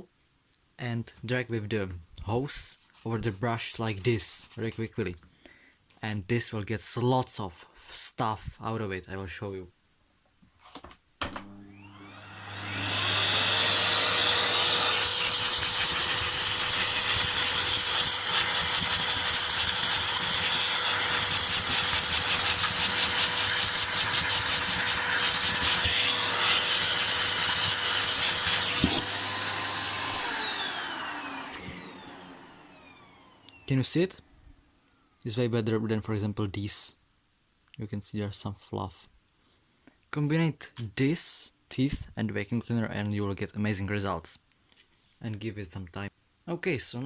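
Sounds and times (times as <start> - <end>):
vacuum cleaner whine: 11.3 - 33.8
vacuum nozzle rasping on brush: 11.9 - 33.6.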